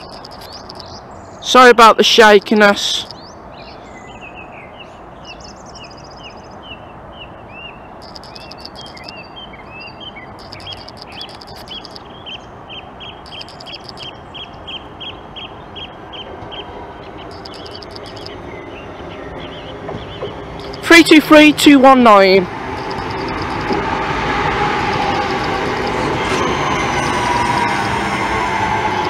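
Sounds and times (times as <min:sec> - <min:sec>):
rapid high bird trills: 0:00.0 - 0:01.1, 0:08.0 - 0:14.5, 0:17.2 - 0:18.4
small birds chirping: 0:00.0 - 0:01.6, 0:02.2 - 0:20.9.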